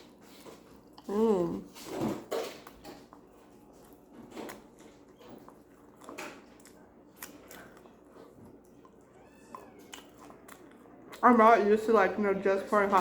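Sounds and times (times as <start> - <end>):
person chewing food: 0.0 - 11.3.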